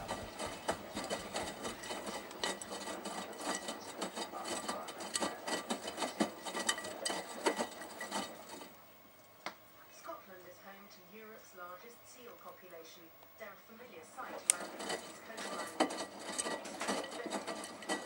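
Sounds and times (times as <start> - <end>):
washing machine sloshing and clattering: 0.0 - 8.8, 14.3 - 18.0.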